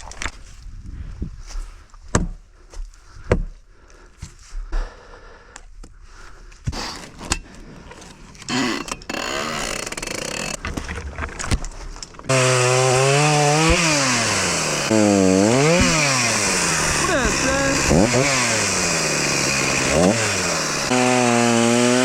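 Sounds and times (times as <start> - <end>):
chainsaw cutting tree: 8.5 - 10.6, 12.3 - 22.0.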